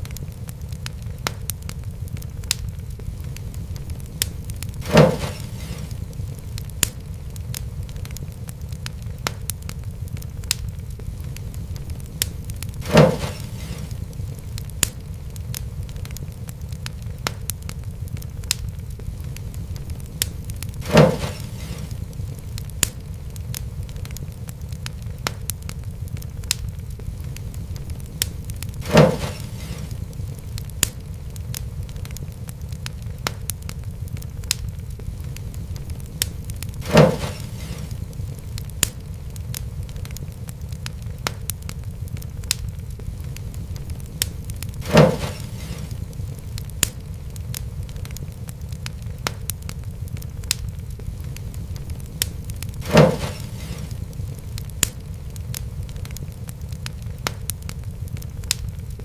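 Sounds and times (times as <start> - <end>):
fire crackling in fireplace: 0.0 - 59.0
loud fire pops: 0.0 - 59.0
low rumble of fire: 0.0 - 59.0.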